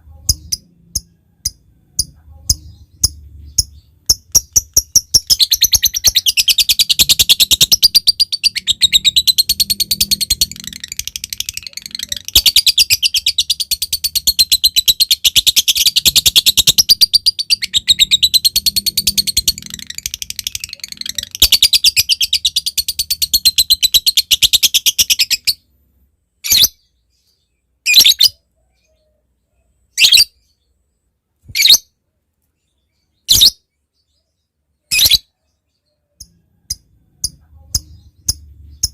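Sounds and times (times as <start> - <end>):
lovebird chattering trill: 0.0 - 25.6, 36.2 - 38.9.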